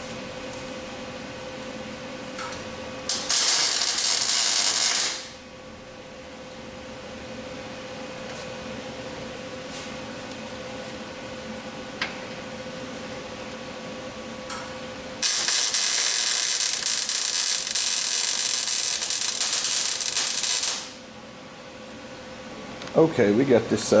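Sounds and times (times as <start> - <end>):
low shop hum: 0.0 - 24.0
welding crackling hiss: 3.1 - 5.4, 15.2 - 21.0.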